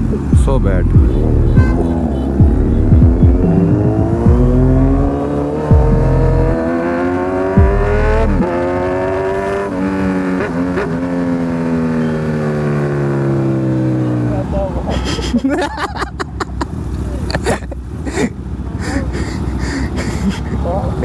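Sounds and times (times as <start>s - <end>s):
exhaust pops: 0.0s - 6.8s, 7.5s - 11.8s
sportbike engine accelerating: 0.0s - 14.9s.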